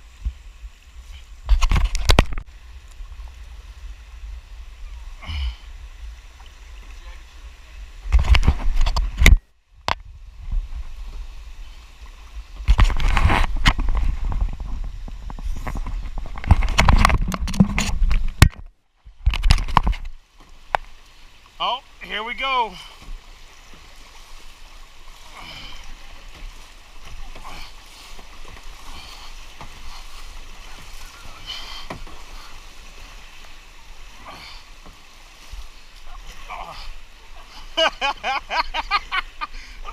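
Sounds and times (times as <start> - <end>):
floodwater rushing and splashing: 0.0 - 39.9
paddle splashes and knocks: 12.0 - 21.8, 22.4 - 39.6.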